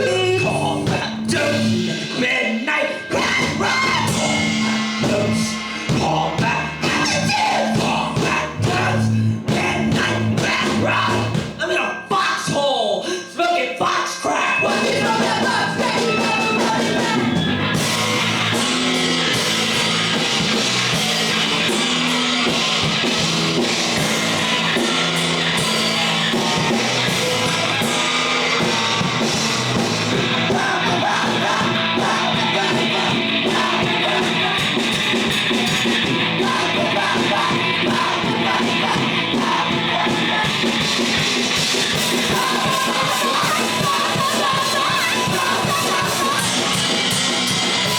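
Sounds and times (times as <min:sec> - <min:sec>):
punk rock band playing: 0:00.0 - 0:11.7, 0:14.6 - 0:47.9
person shouting singing: 0:00.0 - 0:19.4, 0:24.0 - 0:47.9.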